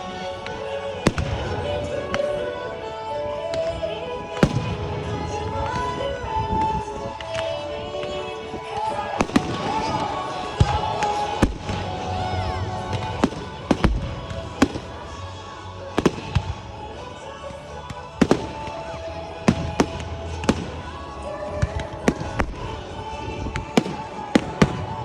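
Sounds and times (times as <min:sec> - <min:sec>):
music playing: 0:00.0 - 0:25.0
fireworks bangs: 0:04.3 - 0:15.2, 0:15.9 - 0:16.8.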